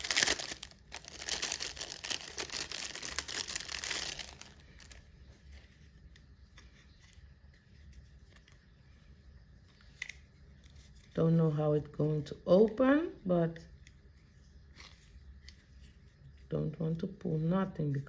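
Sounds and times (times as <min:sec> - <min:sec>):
packaging crinkling and tearing: 0:00.0 - 0:05.0.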